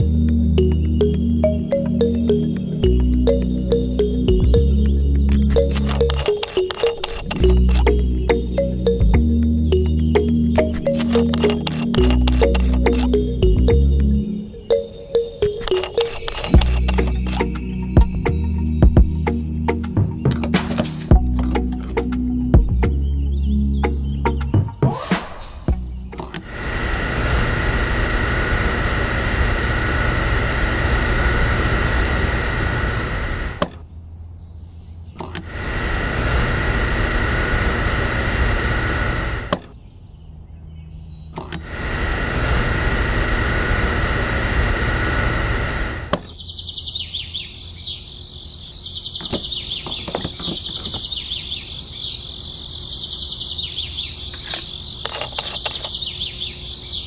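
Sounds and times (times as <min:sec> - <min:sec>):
water pump motor whine: 0:26.4 - 0:33.7, 0:35.4 - 0:39.6, 0:41.6 - 0:46.2
insects chirring: 0:46.3 - 0:57.0.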